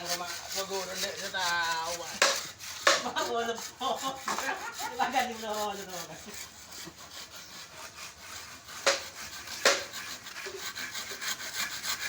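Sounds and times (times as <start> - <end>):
hand saw cutting wood: 0.0 - 12.0
sharp knocks: 8.8 - 10.1.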